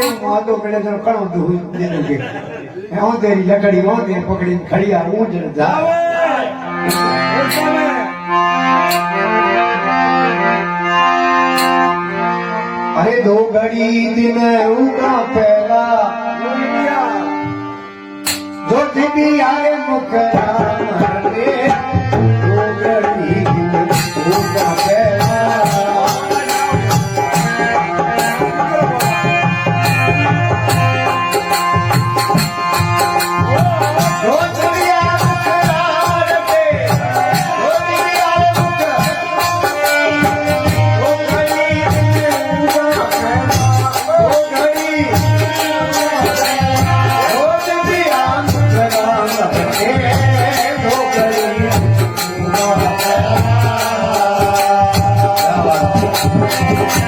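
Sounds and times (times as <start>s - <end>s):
rattling percussion: 0.0s - 0.8s, 6.8s - 8.1s, 8.8s - 9.4s, 11.4s - 12.1s, 18.2s - 19.0s, 20.3s - 57.0s
hand drum beat: 23.0s - 57.0s.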